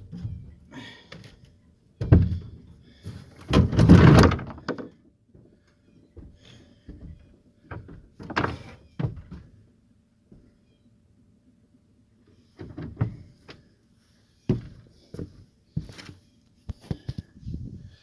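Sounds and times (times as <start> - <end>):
clattering impact: 3.5 - 4.9.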